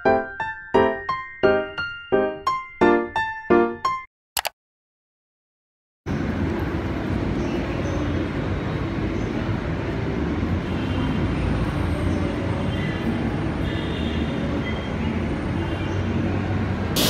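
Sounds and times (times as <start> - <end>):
light-rail train rumbling: 6.1 - 13.8.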